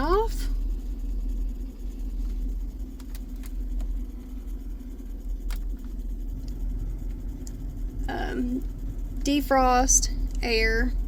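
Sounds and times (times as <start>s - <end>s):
car cabin engine hum: 0.0s - 11.0s.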